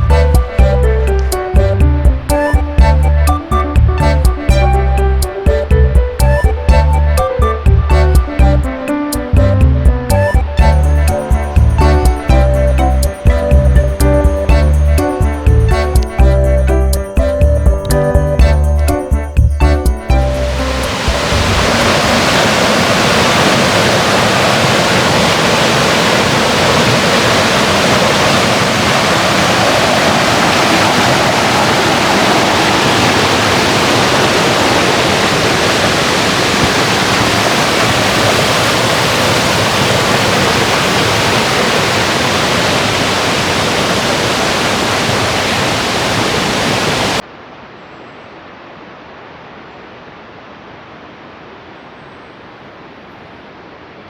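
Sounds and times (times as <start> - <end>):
loud steady rushing noise: 20.1 - 47.2.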